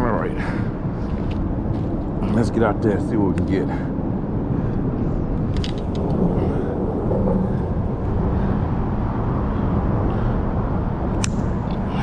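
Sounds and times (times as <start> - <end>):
traffic rumbling on bridge: 0.0 - 12.0.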